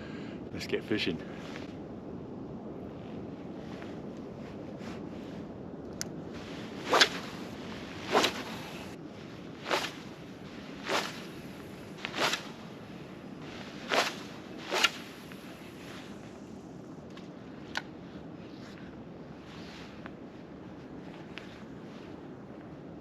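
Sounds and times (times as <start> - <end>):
fishing rod swishing through air: 6.1 - 16.2.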